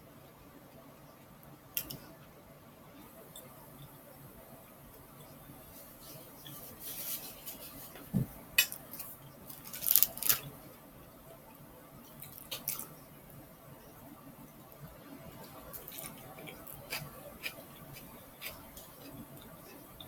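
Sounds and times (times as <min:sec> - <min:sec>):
soft thump: 0:08.1 - 0:08.4.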